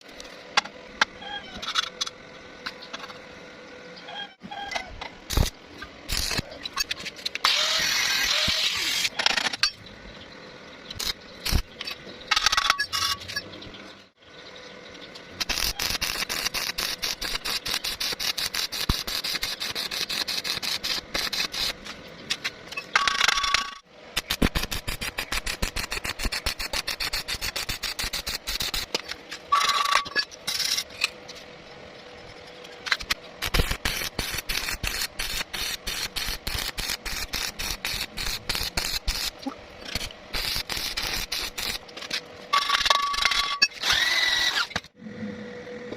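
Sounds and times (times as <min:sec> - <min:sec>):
welding hiss: 0:05.3 - 0:06.4, 0:07.5 - 0:09.1, 0:11.0 - 0:11.7, 0:15.4 - 0:21.9, 0:24.1 - 0:29.0, 0:32.9 - 0:41.8
arc welding crackling: 0:05.3 - 0:09.5, 0:10.9 - 0:12.6, 0:15.2 - 0:31.0, 0:32.4 - 0:44.8.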